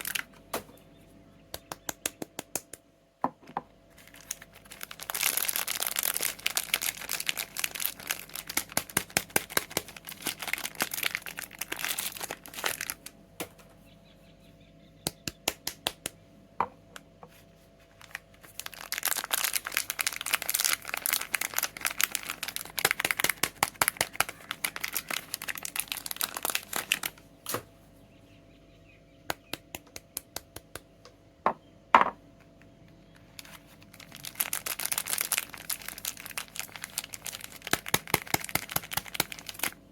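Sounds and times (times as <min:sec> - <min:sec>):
sharp snaps: 0:01.5 - 0:02.9, 0:15.0 - 0:16.2, 0:29.3 - 0:31.2
plastic and paper crinkling: 0:04.0 - 0:13.1, 0:17.3 - 0:27.2, 0:33.2 - 0:39.8.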